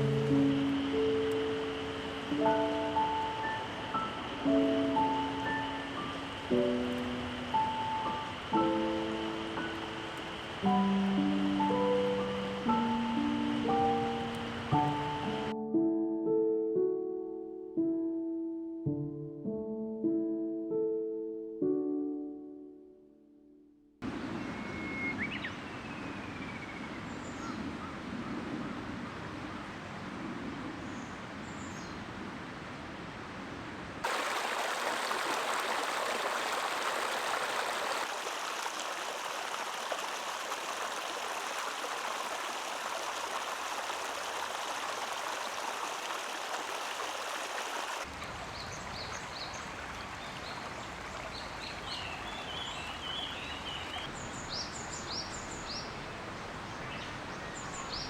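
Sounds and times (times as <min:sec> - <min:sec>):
stream water flowing: 0:00.0 - 0:15.5, 0:32.4 - 0:58.0
birds chirping: 0:24.0 - 0:28.4, 0:48.5 - 0:58.0
bird calling: 0:24.2 - 0:28.0.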